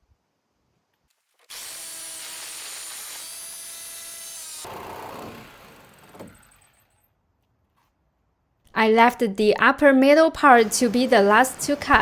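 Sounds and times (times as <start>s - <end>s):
jigsaw cutting steel: 1.4s - 7.0s.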